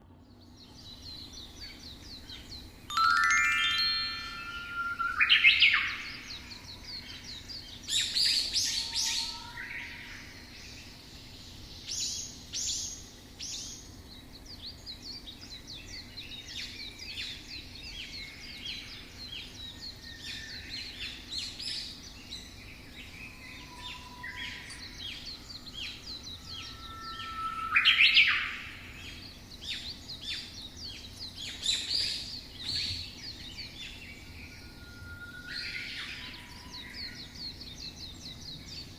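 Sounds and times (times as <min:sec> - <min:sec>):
songbirds chirping and singing: 0:00.0 - 0:38.9.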